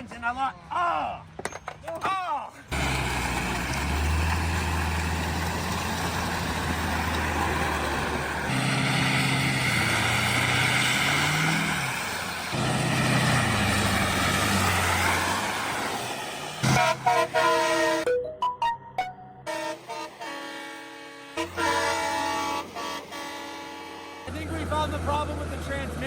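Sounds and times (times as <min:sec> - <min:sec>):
car engine running: 0:02.7 - 0:10.4.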